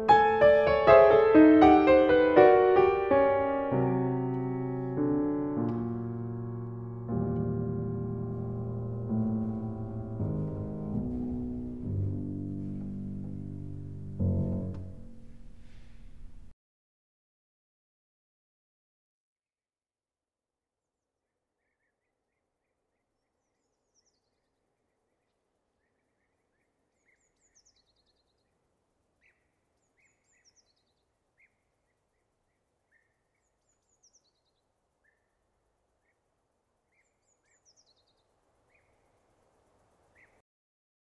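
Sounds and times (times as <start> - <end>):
birds chirping: 36.9 - 40.4.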